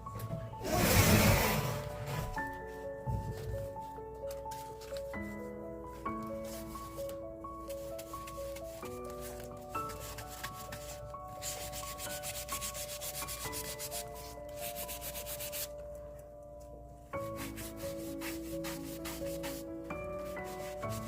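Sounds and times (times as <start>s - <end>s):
soft background music: 0.0s - 21.0s
scratchy rubbing on paper: 7.8s - 15.7s, 17.2s - 21.0s.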